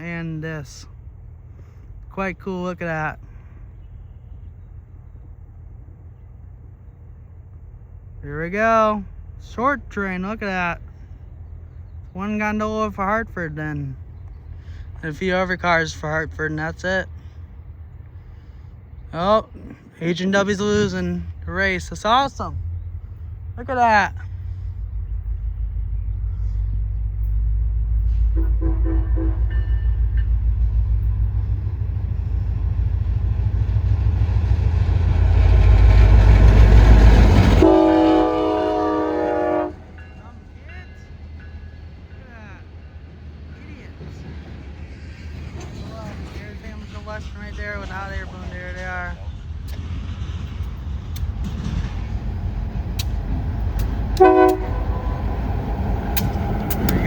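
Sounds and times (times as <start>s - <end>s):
diesel locomotive engine rumble: 0.0s - 57.0s
train rail noise: 0.0s - 57.0s
locomotive air horn blast: 28.1s - 29.6s, 37.5s - 40.0s, 54.2s - 55.5s.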